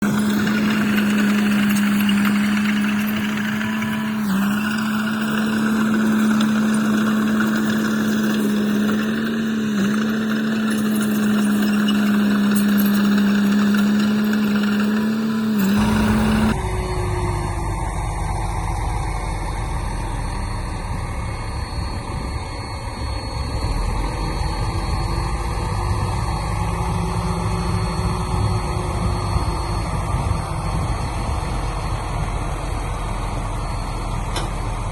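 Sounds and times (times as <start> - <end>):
heavy machinery engine humming: 0.0 - 19.3
deep engine rumble: 15.8 - 20.0.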